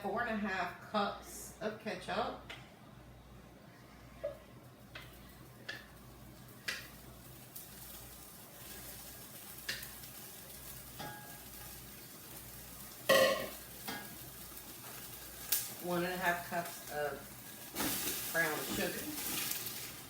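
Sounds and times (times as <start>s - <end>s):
sauce sizzling in a pot: 4.6s - 20.0s.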